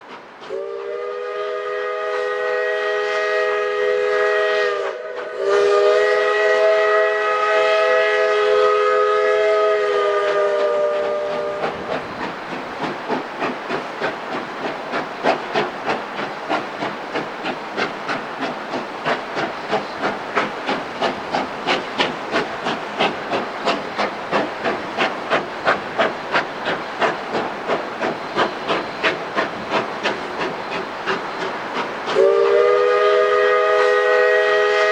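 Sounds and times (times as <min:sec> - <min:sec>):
steam locomotive chuffing: 0:00.0 - 0:34.9
steam whistle chime: 0:32.2 - 0:34.9.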